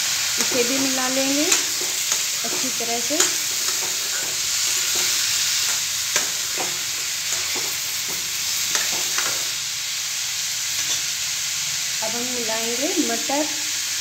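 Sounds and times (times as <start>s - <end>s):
carrots sizzling in hot oil: 0.0s - 14.0s
metal spatula scraping pan: 0.4s - 9.6s.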